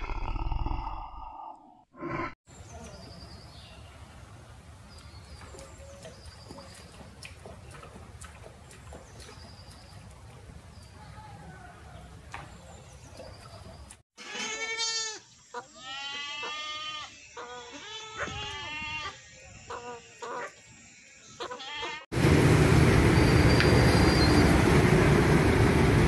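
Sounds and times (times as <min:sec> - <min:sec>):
goat kids bleating: 0:14.2 - 0:19.2, 0:21.4 - 0:22.0.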